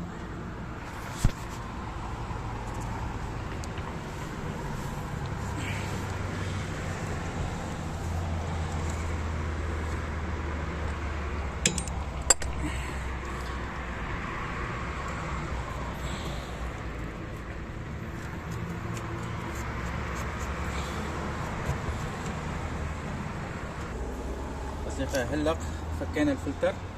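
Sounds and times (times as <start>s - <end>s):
socket wrench clinks: 11.6s - 12.6s.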